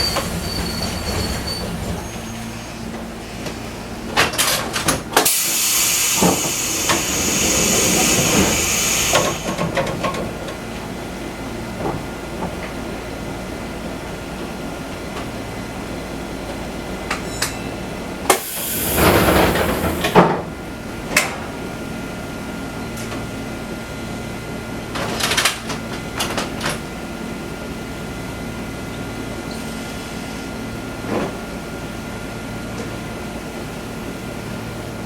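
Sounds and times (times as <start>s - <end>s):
train equipment humming: 0.0s - 4.2s, 5.0s - 24.4s
compressed air hiss: 5.3s - 9.6s, 18.3s - 20.2s.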